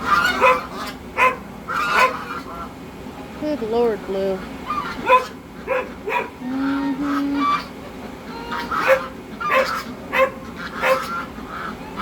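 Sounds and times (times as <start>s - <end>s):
dog whining: 0.3s - 1.4s, 4.7s - 7.2s, 8.5s - 11.1s
dog barking: 0.3s - 2.2s, 5.0s - 6.4s, 8.8s - 11.1s.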